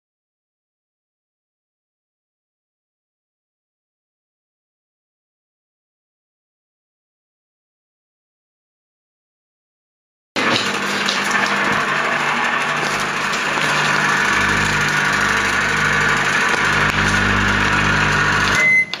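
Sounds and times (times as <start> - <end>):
microwave oven humming: 10.4 - 19.0
microwave beep: 14.3 - 19.0.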